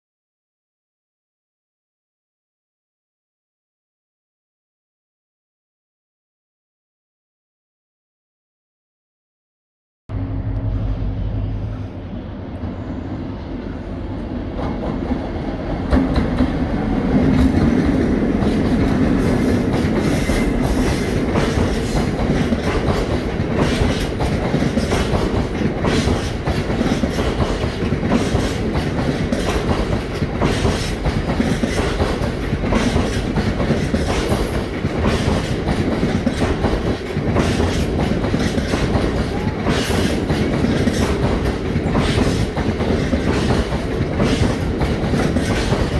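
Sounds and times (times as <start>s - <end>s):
model train wheels clicking on rails: 17.3s - 45.9s.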